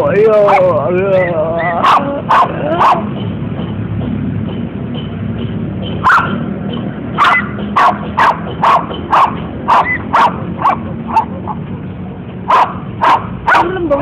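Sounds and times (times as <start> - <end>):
dog barking sharply: 1.8 - 3.1, 6.0 - 6.4, 7.2 - 11.6, 12.5 - 13.7.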